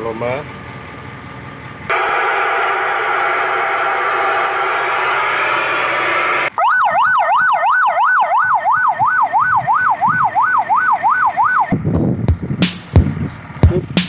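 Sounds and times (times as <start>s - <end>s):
electronic siren wailing: 1.9s - 11.8s
music with a beat: 11.9s - 14.0s.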